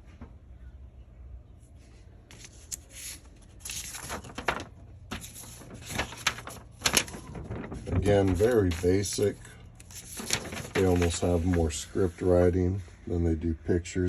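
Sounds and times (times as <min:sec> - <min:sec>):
paper rustling and crinkling: 0:02.3 - 0:12.4.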